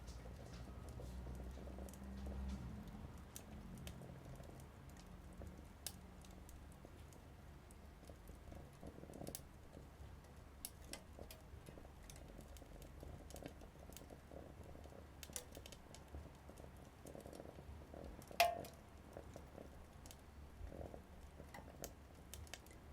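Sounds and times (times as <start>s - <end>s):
wood fire crackling: 0.0s - 22.9s
sharp pops: 18.3s - 18.8s.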